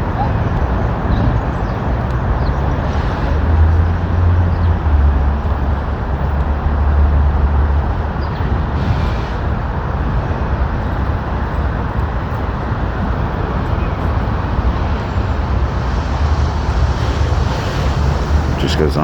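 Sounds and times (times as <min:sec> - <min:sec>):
city street traffic: 0:00.0 - 0:19.0
vehicle rumbling past: 0:13.2 - 0:19.0.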